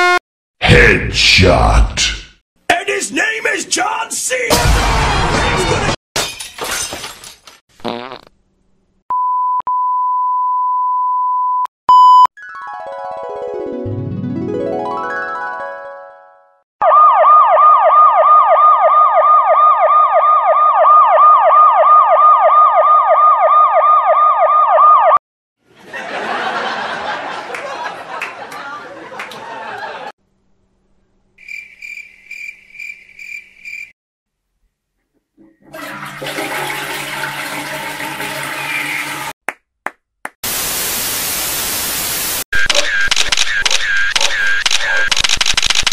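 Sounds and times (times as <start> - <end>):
siren yelping: 16.8 - 25.2
toilet flushing: 35.4 - 39.3.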